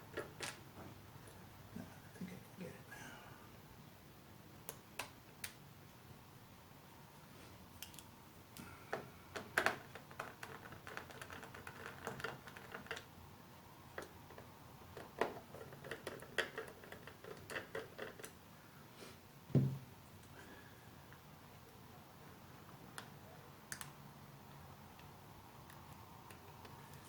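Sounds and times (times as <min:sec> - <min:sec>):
small parts and tools clicking: 0:08.9 - 0:13.1, 0:13.9 - 0:18.4
heavy knock: 0:19.5 - 0:19.9.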